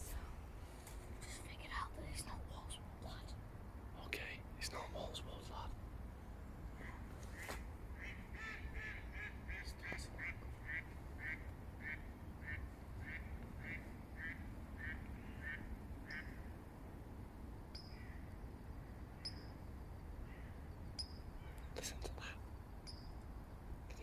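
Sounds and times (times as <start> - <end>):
duck quacking: 8.0 - 16.2.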